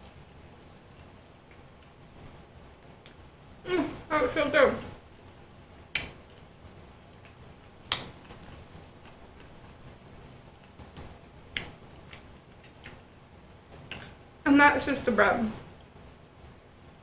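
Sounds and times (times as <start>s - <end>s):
mouth clicks and smacks: 10.6s - 13.1s, 13.7s - 14.2s.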